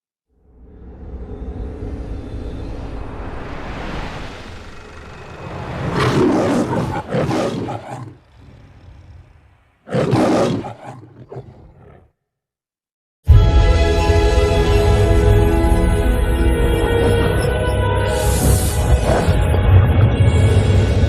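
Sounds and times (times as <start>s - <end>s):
lion roaring: 4.6s - 12.2s, 18.4s - 19.6s
loud music: 13.3s - 20.5s.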